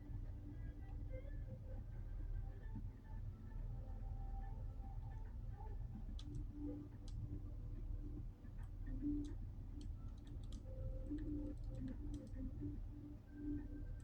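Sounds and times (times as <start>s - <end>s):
light irregular clicks: 4.3s - 14.0s.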